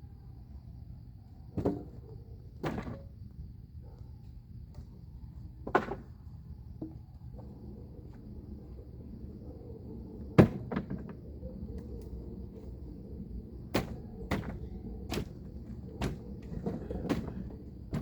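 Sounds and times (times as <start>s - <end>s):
firewood knocking on wood pile: 1.6s - 2.0s, 2.6s - 3.0s, 5.6s - 6.2s, 10.4s - 11.2s, 13.7s - 15.4s, 16.0s - 18.0s.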